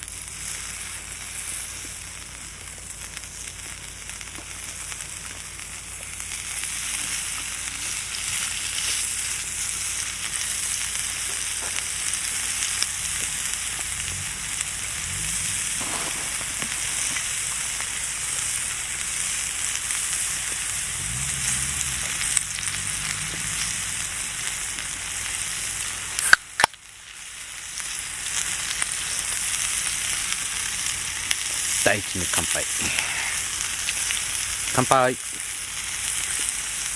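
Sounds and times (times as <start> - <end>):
beef sizzling on grill: 0.0 - 36.9
sharp clicks: 15.7 - 17.9.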